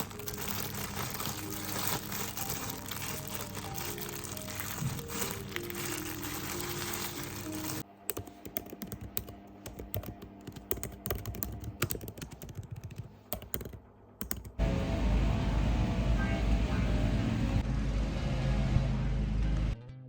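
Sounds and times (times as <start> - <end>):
typing on a keyboard: 8.1 - 14.6.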